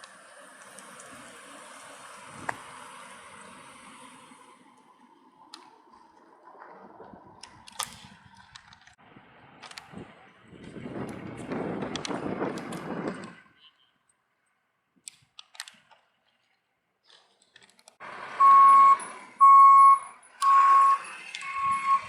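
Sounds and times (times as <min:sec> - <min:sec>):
electronic warning beeps: 0:18.4 - 0:22.0.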